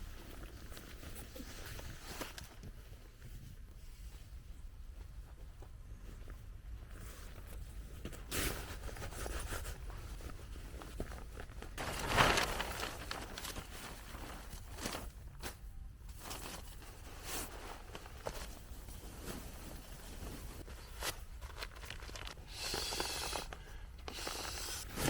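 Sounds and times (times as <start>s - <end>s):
tarp rustling: 10.7s - 15.5s, 16.2s - 22.4s.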